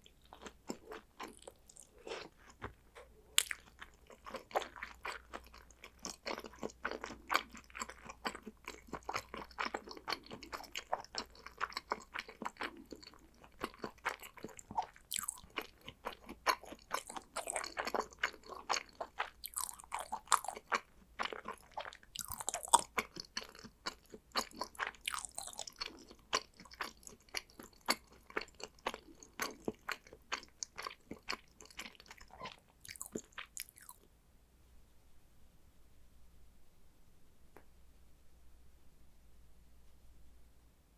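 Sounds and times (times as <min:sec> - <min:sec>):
person chewing wetly: 0:00.0 - 0:34.0.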